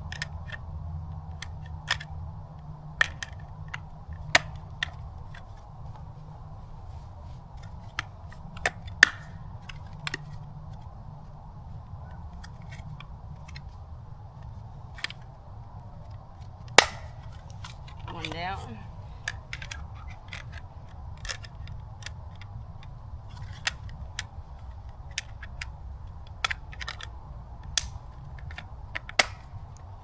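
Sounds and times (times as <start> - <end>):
low steady hum: 0.0 - 30.0
clicks of small metal parts: 1.4 - 2.1, 19.2 - 25.7, 26.3 - 29.6.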